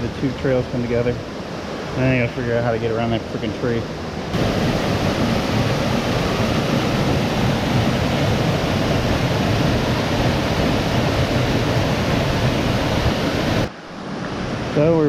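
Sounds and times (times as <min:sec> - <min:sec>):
water rushing down rocky stream: 0:04.3 - 0:13.7.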